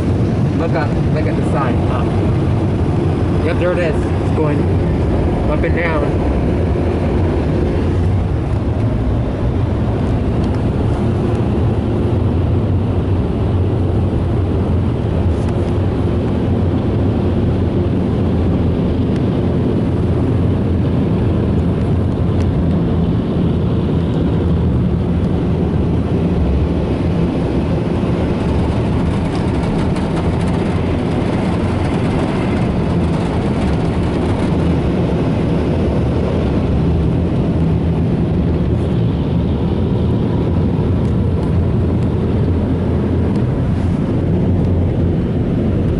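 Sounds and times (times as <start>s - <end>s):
car wash dryer blowers: 0.0s - 22.4s, 23.3s - 45.9s.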